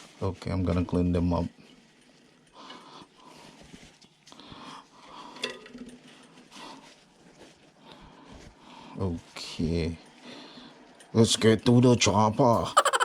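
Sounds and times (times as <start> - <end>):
faint rubbing and handling: 0.0 - 5.0, 5.8 - 9.4.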